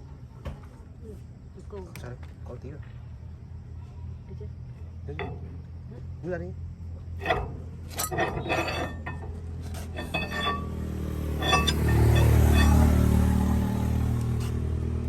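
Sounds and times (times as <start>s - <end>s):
metal tools clinking: 5.2s - 5.4s, 7.2s - 13.6s.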